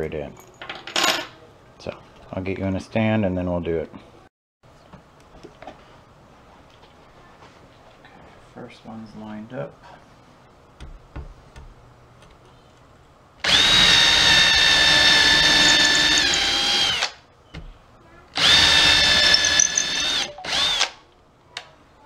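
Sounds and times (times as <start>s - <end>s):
power drill drilling into wood: 13.4s - 17.2s, 18.4s - 21.0s.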